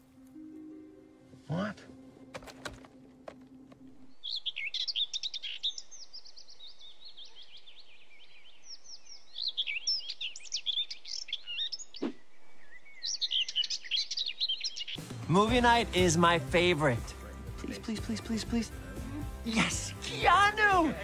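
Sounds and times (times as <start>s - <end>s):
birds chirping and singing: 2.4s - 16.3s.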